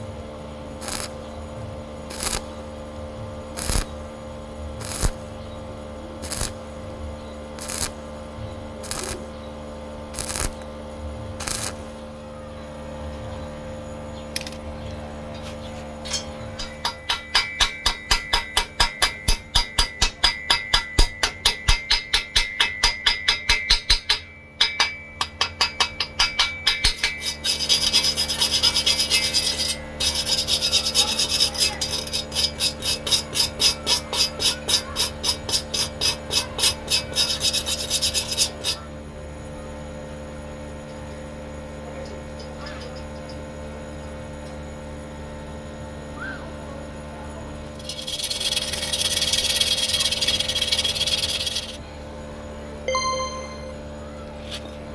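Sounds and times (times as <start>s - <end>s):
hand tool rasping on metal: 16.0s - 24.2s, 24.8s - 38.9s, 47.8s - 51.8s.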